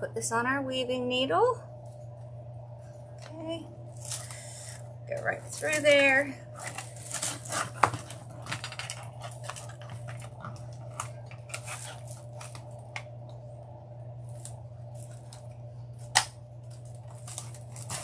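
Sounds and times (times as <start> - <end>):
steady low hum: 0.0 - 18.0
dry vines crackling and rustling: 5.1 - 13.2, 14.2 - 18.0.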